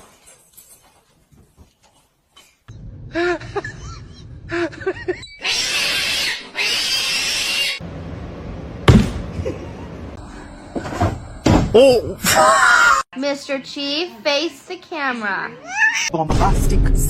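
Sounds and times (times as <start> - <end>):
loud thump: 8.8 - 9.4
cat meowing: 15.6 - 16.1.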